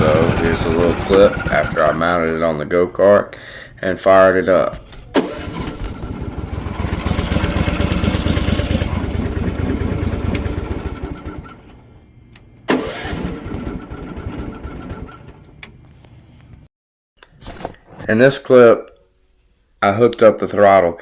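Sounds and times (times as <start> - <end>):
engine starting with loud burst: 0.0 - 2.3, 5.2 - 11.9, 12.7 - 15.5
go-kart engine running: 0.0 - 2.4, 5.1 - 11.9, 12.7 - 15.5.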